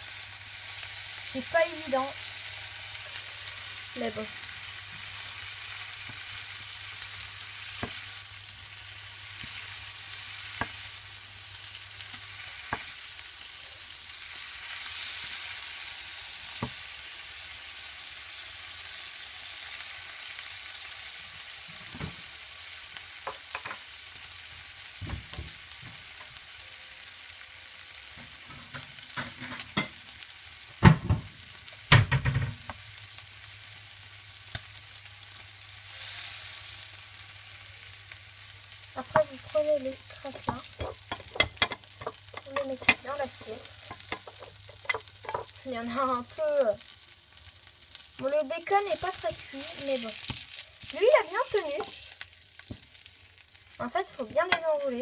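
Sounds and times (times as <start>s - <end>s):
frying sizzle with pops: 0.0s - 55.0s
wooden spatula knocking pan: 40.3s - 45.6s.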